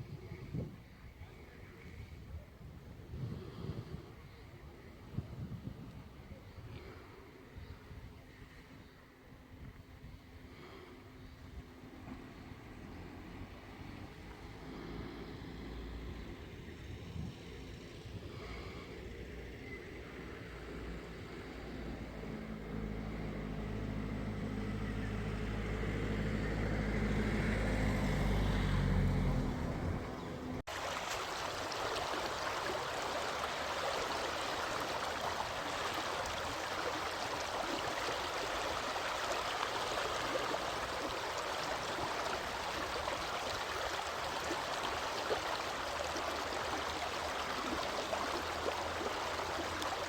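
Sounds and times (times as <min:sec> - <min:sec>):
stream flowing: 0:11.8 - 0:50.0
vehicle engine droning: 0:12.1 - 0:30.7.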